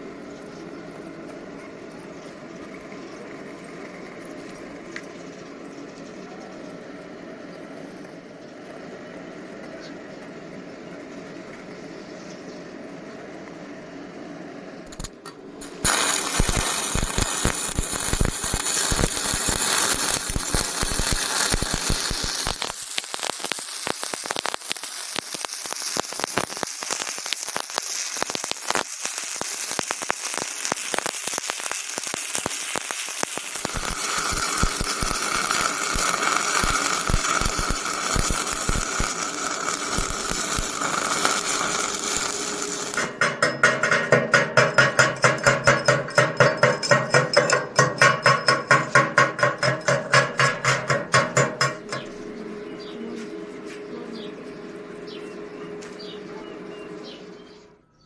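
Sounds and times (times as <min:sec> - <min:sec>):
welding arc crackling: 0:14.8 - 0:52.1.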